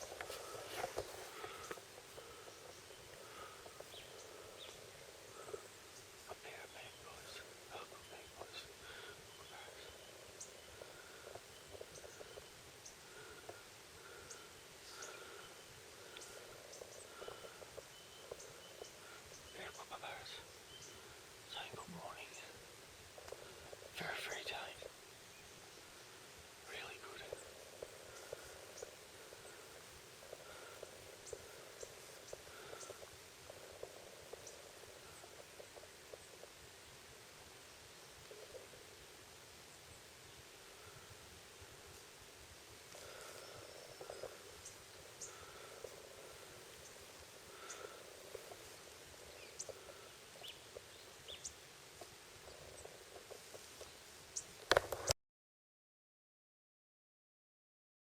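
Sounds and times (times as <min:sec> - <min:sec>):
outdoor background hiss: 0:00.0 - 0:55.2
animal low clicks: 0:42.9 - 0:55.2.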